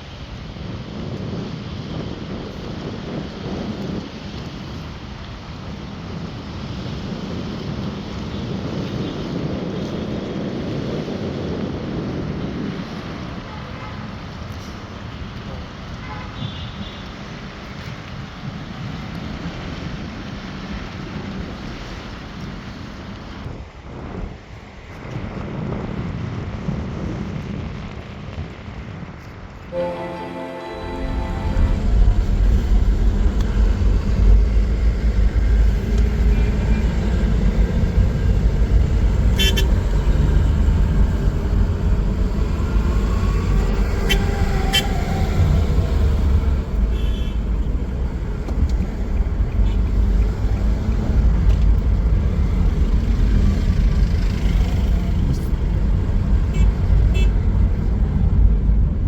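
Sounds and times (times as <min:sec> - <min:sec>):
wind buffeting microphone: 0:00.0 - 0:16.0, 0:31.7 - 0:54.0
street traffic: 0:00.0 - 0:59.0
car horns tooting: 0:29.7 - 0:33.2, 0:39.3 - 0:40.0, 0:46.9 - 0:47.6, 0:56.5 - 0:57.4.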